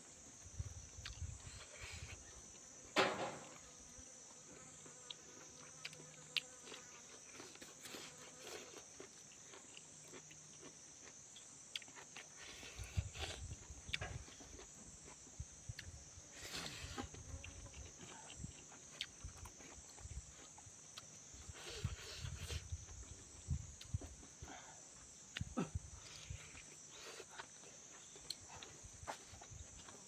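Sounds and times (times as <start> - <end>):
person chewing food: 0.2 - 2.7, 4.8 - 23.9, 25.0 - 30.0
loud sharp knock: 3.0 - 3.5.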